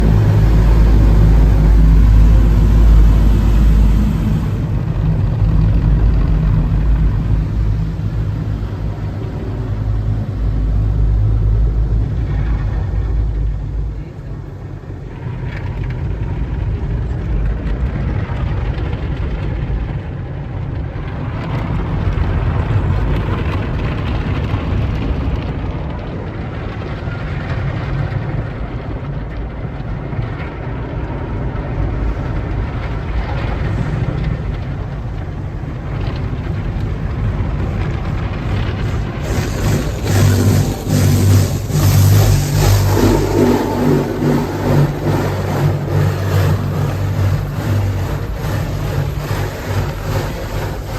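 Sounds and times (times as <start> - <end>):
car wash low rumble: 0.0 - 50.9
hiss of water spray: 38.8 - 50.9.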